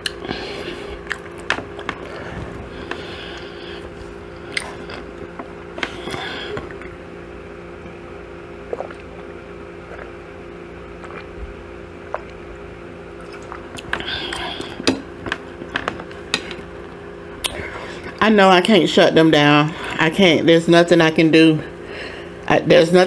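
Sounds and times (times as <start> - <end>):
chewing and biting food: 0.0 - 7.1, 8.5 - 18.2
steady low hum: 0.0 - 23.0.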